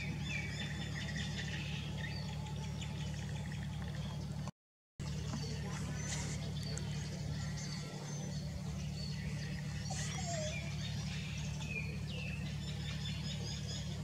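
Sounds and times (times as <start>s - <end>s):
steady low hum: 0.0s - 14.0s
small birds chirping: 5.0s - 14.0s.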